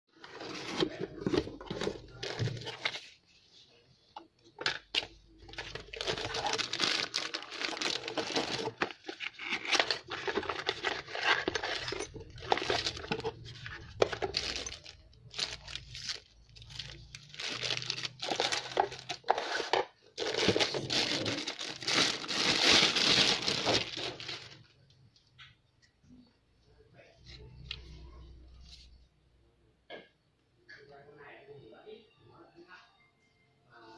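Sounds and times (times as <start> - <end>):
packaging crinkling and tearing: 5.0 - 24.7.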